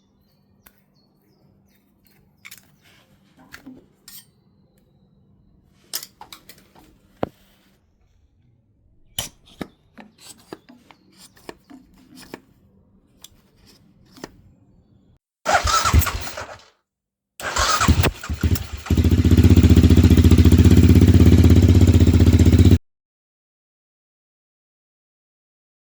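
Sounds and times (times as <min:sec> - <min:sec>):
motorcycle engine running: 0:15.5 - 0:16.6, 0:17.4 - 0:22.8
starter motor cranking: 0:15.5 - 0:16.7, 0:17.4 - 0:22.8.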